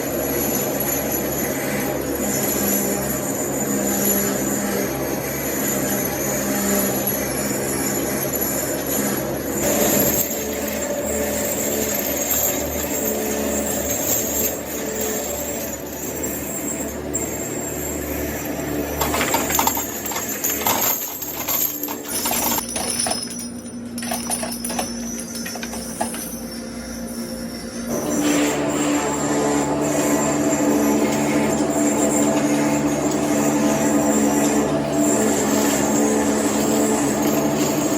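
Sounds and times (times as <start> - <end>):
machine hum and whine: 0.0 - 37.9
sharp knocks and clatter: 18.8 - 26.4.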